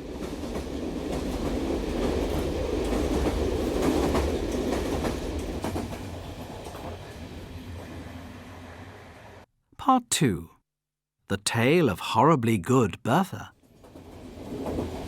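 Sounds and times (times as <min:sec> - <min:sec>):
train wheels clicking over rail joints: 0:00.2 - 0:07.1.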